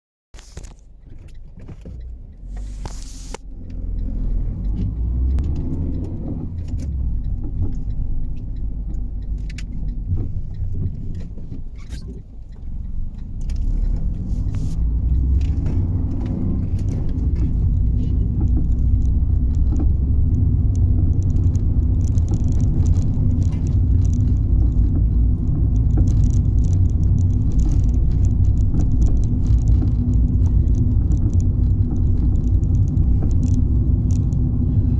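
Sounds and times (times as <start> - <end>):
car road and engine rumble: 0.4 - 34.9.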